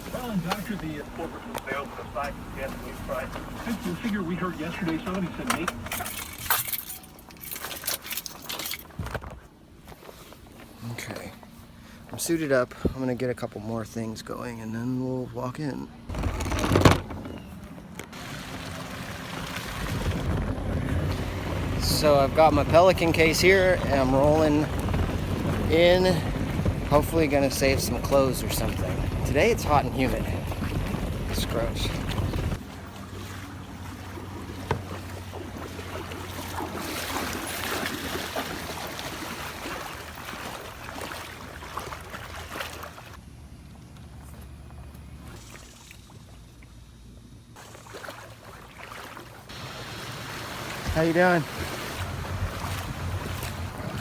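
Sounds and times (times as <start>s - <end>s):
water sloshing and splashing: 0.0s - 10.8s, 16.1s - 43.4s, 44.0s - 54.0s
wind rushing over microphone: 19.4s - 32.6s
low rumble: 19.5s - 32.6s.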